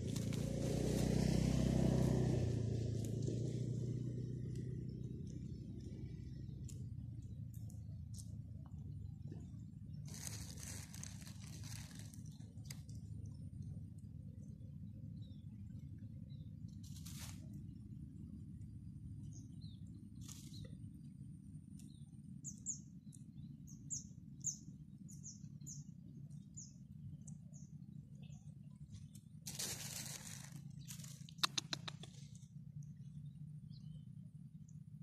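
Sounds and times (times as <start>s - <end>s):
rustle: 0.0s - 8.4s, 9.3s - 13.1s, 16.6s - 18.0s, 19.4s - 23.3s, 28.8s - 33.0s
low outdoor rumble: 0.0s - 35.0s
small bird chirping: 18.3s - 35.0s
sharp clicks: 31.2s - 32.2s.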